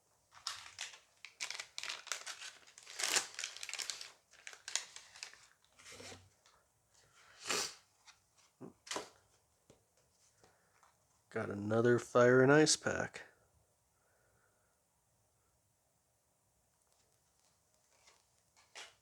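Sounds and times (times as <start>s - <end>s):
plastic foil pack tearing and crinkling: 0.3s - 5.6s.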